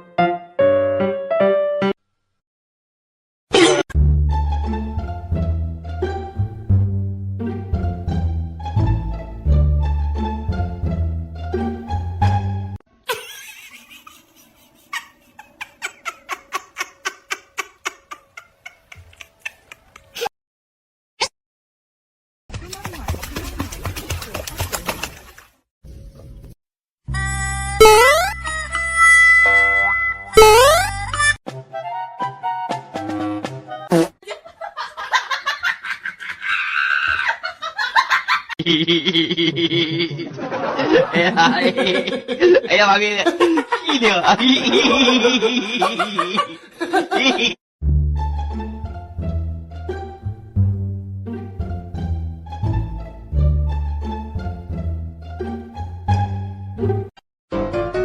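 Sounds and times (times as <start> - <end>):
person laughing hard: 13.1 - 20.3, 34.2 - 47.6
cartoon-style musical sting: 27.7 - 28.7, 29.4 - 31.1.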